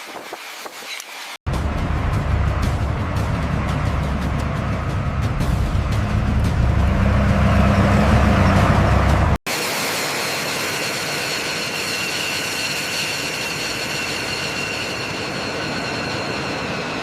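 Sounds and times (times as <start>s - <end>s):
machine hiss: 9.5s - 17.0s.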